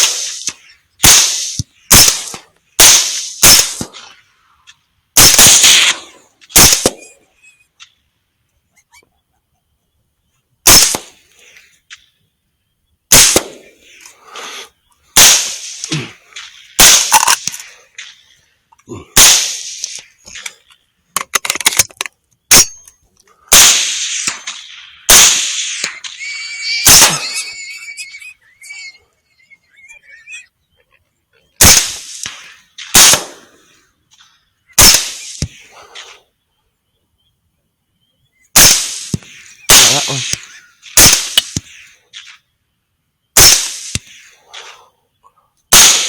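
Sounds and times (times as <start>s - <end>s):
suppressed rifle shots: 0.0s - 4.2s, 5.2s - 7.2s, 10.6s - 11.2s, 13.1s - 13.8s, 15.2s - 18.2s, 19.2s - 20.4s, 22.5s - 22.9s, 23.5s - 26.2s, 26.8s - 27.4s, 31.6s - 33.6s, 34.8s - 36.1s, 38.6s - 42.4s, 43.4s - 44.8s, 45.7s - 46.0s
high wavering cry: 25.8s - 30.5s.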